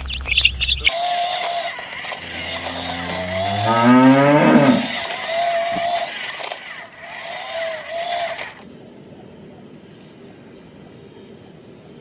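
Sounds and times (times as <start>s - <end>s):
high chirping: 0.0s - 1.0s
cow mooing: 2.2s - 5.1s.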